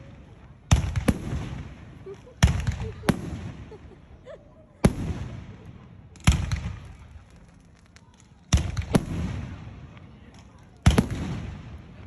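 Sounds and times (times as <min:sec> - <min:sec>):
fireworks booming: 0:00.7 - 0:04.0, 0:04.8 - 0:07.5, 0:08.5 - 0:09.7, 0:10.8 - 0:12.0.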